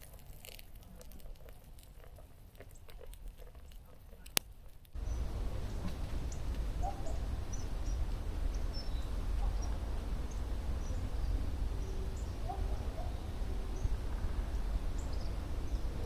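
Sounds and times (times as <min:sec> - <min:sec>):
birds chirping: 0:05.0 - 0:16.0
wind on microphone: 0:05.0 - 0:16.0.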